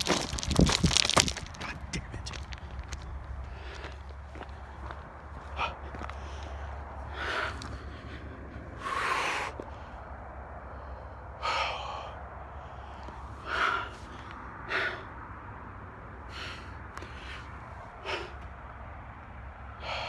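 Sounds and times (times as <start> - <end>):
person breathing hard: 3.4 - 15.2, 19.8 - 20.0.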